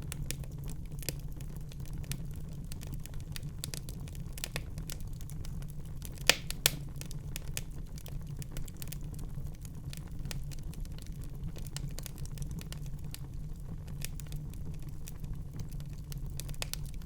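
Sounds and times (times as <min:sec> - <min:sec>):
wood fire crackling: 0:00.0 - 0:17.0
fire pops: 0:06.0 - 0:07.7.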